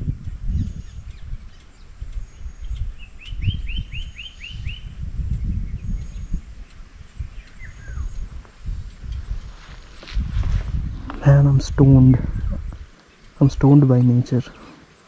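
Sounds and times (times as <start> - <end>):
low rumble: 0.0 - 13.6
birds calling: 0.0 - 15.0
faint high ticking: 0.0 - 15.0
bird sharp chirps: 0.4 - 8.4.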